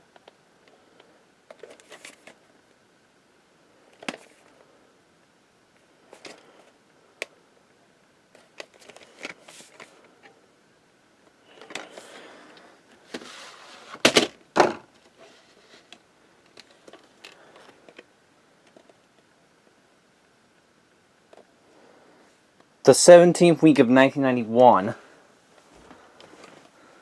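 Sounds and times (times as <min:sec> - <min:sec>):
rustling: 0:08.3 - 0:10.3, 0:11.5 - 0:14.3, 0:14.9 - 0:18.0.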